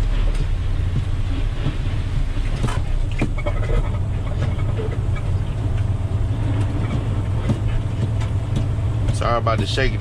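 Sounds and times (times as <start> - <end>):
truck diesel engine rumbling: 0.0 - 10.0.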